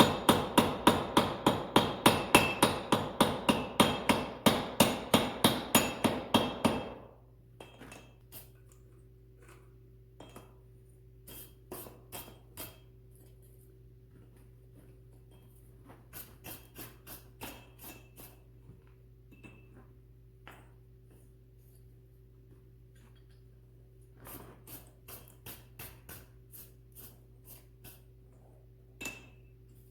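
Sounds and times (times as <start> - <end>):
hammer blows on an anvil: 0.0 - 7.1
light hammer taps and clinks: 19.3 - 20.8.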